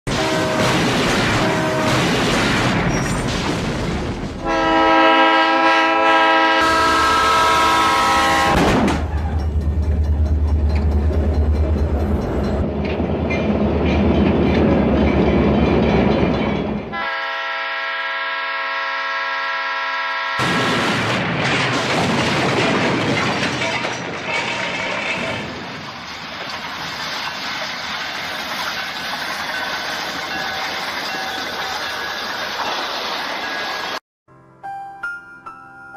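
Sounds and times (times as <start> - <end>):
locomotive air horn: 0.1 - 2.0, 4.4 - 8.8, 16.9 - 20.5
train rumbling and clattering past: 4.0 - 17.0, 20.4 - 34.0.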